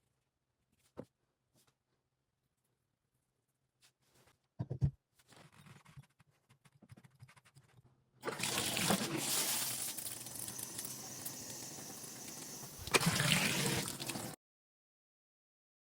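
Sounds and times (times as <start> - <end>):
water running from a tap: 8.2 - 14.4.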